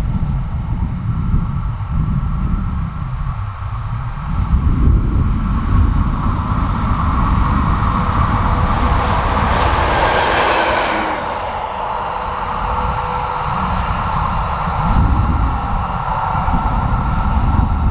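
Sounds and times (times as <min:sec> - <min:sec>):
rush of wheel and air noise: 0:00.0 - 0:17.9
electric train passing: 0:03.6 - 0:17.9
heavy low rumble: 0:03.9 - 0:17.9.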